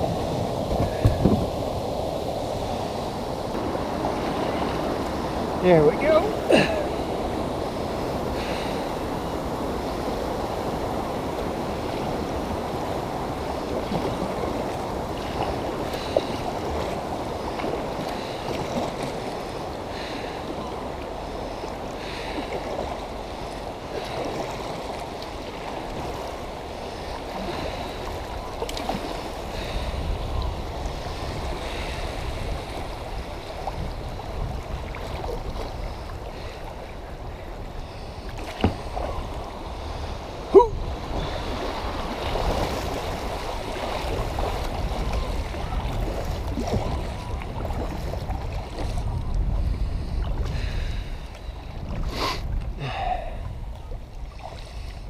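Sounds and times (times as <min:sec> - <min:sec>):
creek water rushing: 0:00.0 - 0:49.2.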